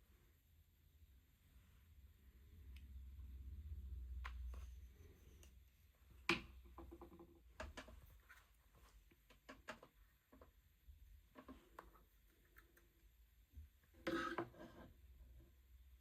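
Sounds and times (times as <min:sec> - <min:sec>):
faint clicks and taps: 0:04.2 - 0:10.7.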